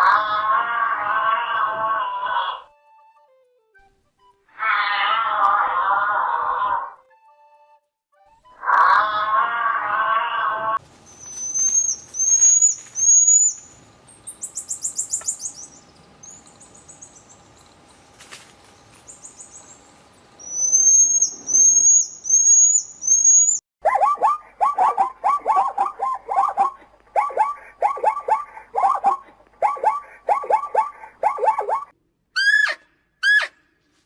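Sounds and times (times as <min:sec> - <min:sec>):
animal yelping calls: 0:00.0 - 0:02.7, 0:04.5 - 0:07.0, 0:08.6 - 0:10.8, 0:20.5 - 0:33.6
songbird whistling calls: 0:11.1 - 0:17.3, 0:20.4 - 0:33.5.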